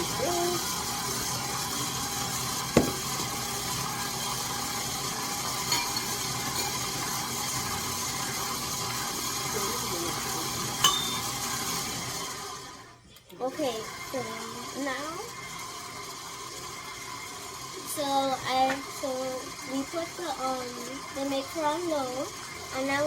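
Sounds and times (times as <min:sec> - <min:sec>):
electric mixer running: 0:00.0 - 0:12.9, 0:13.5 - 0:23.0
sharp clink: 0:10.8 - 0:11.3.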